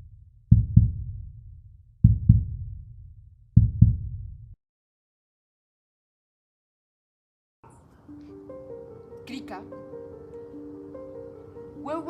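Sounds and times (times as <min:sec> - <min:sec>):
heartbeat thumps: 0:00.0 - 0:04.6.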